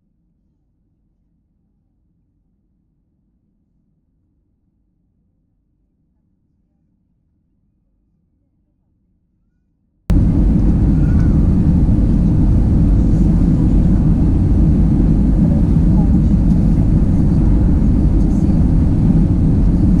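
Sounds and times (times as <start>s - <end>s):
airplane cabin engine rumble: 10.1s - 20.0s.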